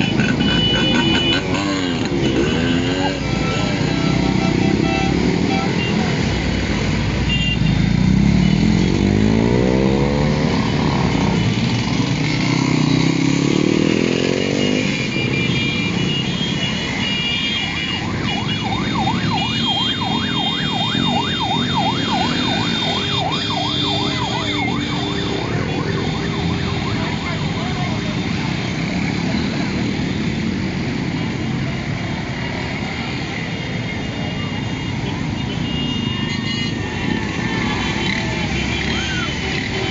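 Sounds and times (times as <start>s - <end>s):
motorcycle engines revving: 0.0s - 39.9s
siren yelping: 17.6s - 28.0s.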